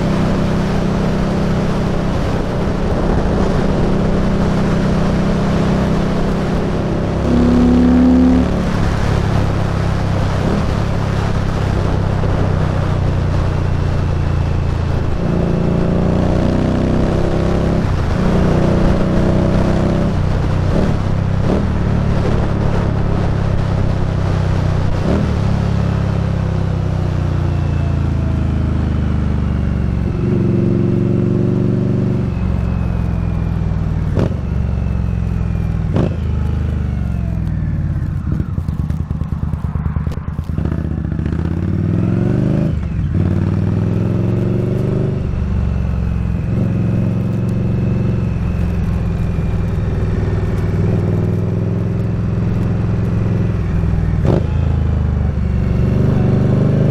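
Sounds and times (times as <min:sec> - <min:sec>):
wind and road noise: 0:00.0 - 0:56.9
motorcycle engine running: 0:27.3 - 0:56.9.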